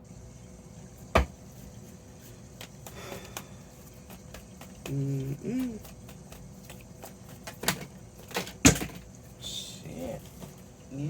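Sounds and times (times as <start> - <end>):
person humming: 4.8 - 5.9.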